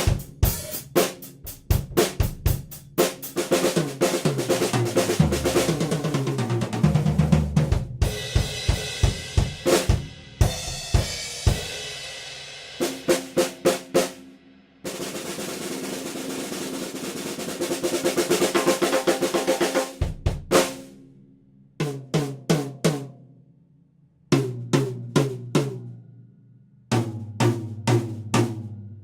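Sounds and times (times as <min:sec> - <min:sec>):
snare drum roll: 0:00.0 - 0:01.2, 0:03.0 - 0:10.1, 0:12.8 - 0:14.2, 0:14.9 - 0:20.9.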